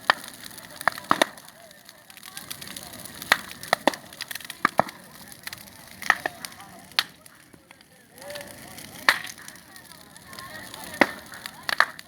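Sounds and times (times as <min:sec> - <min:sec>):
bonfire crackling: 0:00.0 - 0:12.0
wood fire sharp pops: 0:00.0 - 0:12.0.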